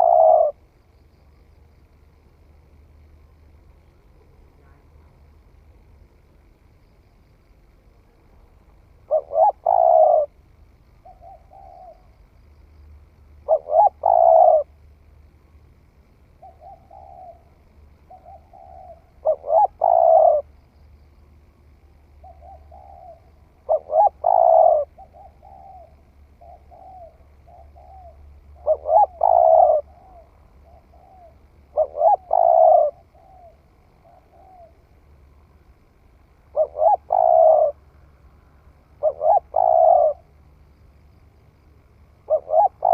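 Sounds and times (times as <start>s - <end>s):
dove cooing: 0.0s - 0.8s, 8.9s - 10.4s, 11.0s - 12.2s, 13.4s - 14.8s, 16.3s - 20.6s, 22.1s - 35.0s, 36.5s - 38.0s, 38.8s - 40.4s, 42.2s - 42.9s.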